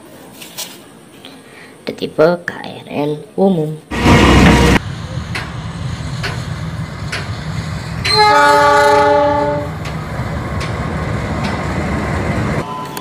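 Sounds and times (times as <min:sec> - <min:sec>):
passing train rumble: 0:03.9 - 0:13.0
locomotive horn: 0:04.0 - 0:04.8, 0:08.0 - 0:09.7
wheels clicking on rail joints: 0:06.2 - 0:12.0.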